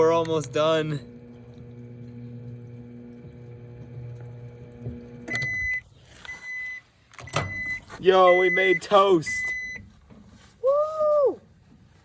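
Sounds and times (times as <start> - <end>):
microwave oven humming: 0.0 - 5.9
microwave beep: 4.8 - 9.8.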